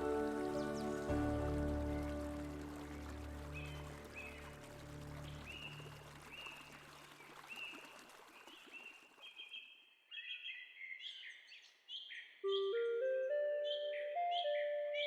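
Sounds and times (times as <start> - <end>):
small bird chirping: 9.3 - 15.0.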